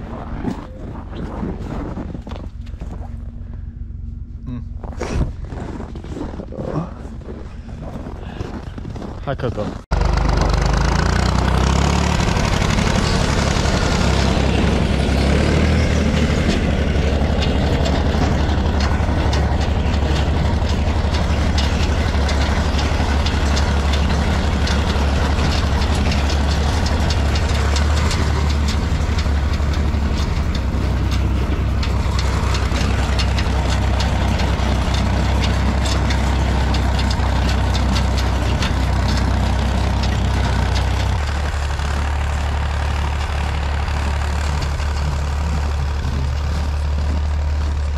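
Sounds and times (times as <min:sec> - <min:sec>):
vehicle engine idling: 0:00.0 - 0:47.9.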